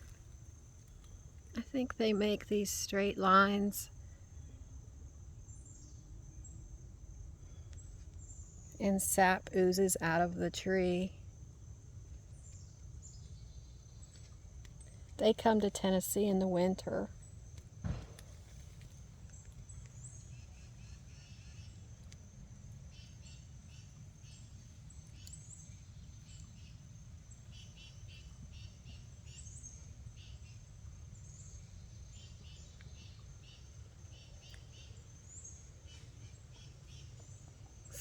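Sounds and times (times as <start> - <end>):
small birds chirping: 22.8 - 38.0.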